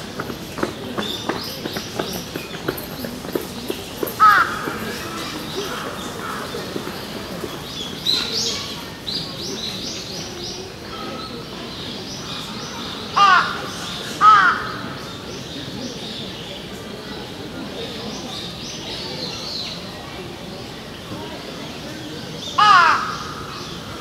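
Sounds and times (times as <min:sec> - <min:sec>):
loud bird calls: 0:22.4 - 0:24.0.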